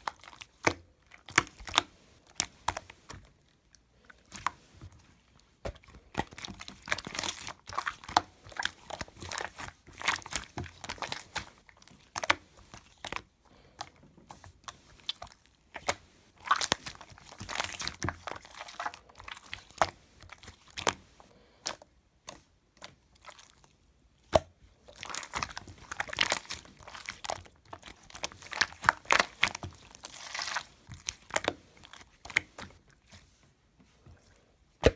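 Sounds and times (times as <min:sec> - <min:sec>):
slime crackling and popping: 0:05.7 - 0:13.9, 0:14.6 - 0:21.0, 0:24.2 - 0:32.8.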